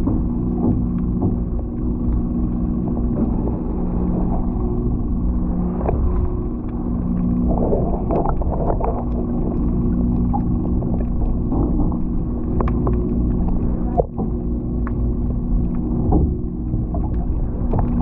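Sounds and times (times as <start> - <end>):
boat engine drone: 0.0 - 18.0
water knocking against hull: 0.0 - 18.0.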